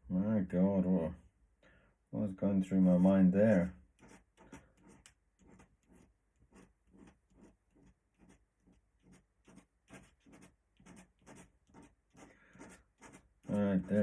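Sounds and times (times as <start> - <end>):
pen scratching on paper: 3.0 - 14.0.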